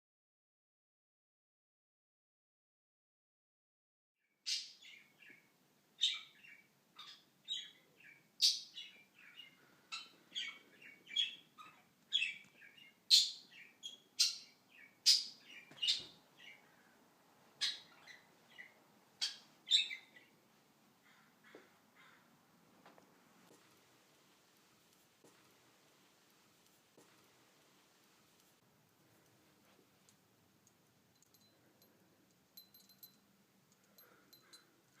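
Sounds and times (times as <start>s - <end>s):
budgerigar chirping: 6.0s - 16.6s, 17.6s - 20.3s.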